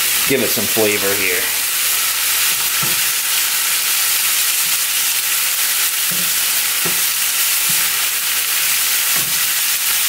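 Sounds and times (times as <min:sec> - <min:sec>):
cabbage sizzling in a frying pan: 0:00.0 - 0:10.0
spatula scraping a pan: 0:06.0 - 0:10.0.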